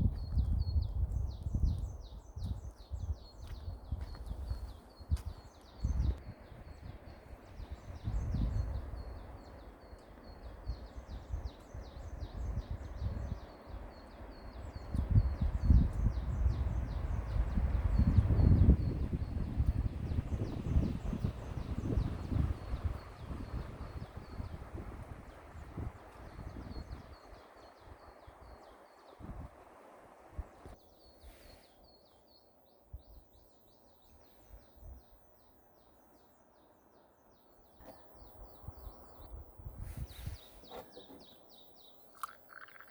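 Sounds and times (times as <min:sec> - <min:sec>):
wind gusting on microphone: 0:00.0 - 0:30.8, 0:37.8 - 0:42.9
small birds chirping: 0:00.0 - 0:42.9
small bird chirping: 0:30.8 - 0:42.9.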